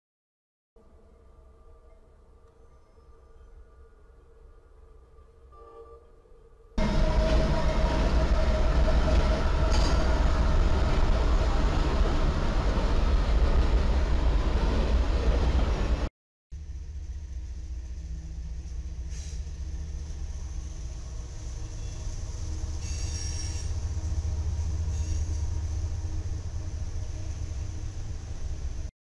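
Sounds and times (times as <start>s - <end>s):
diesel freight train passing: 6.8s - 28.9s.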